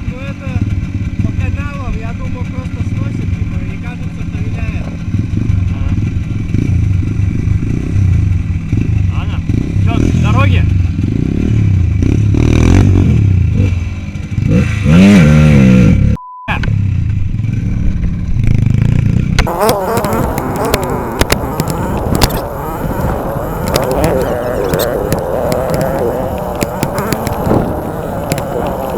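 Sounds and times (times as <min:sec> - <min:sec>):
motorcycle engine running: 0:00.0 - 0:15.4, 0:16.8 - 0:28.9
short steady beep: 0:16.2 - 0:16.6
sharp clattering knocks: 0:19.4 - 0:28.9.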